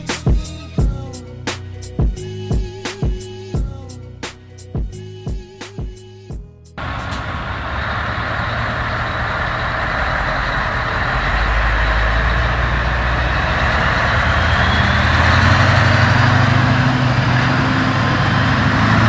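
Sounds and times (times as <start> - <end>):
diesel truck engine running: 6.8 - 19.0.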